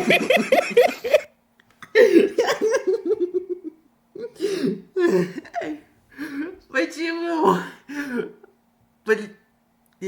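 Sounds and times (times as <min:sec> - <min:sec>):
man laughing: 0:00.0 - 0:01.3, 0:01.9 - 0:05.8.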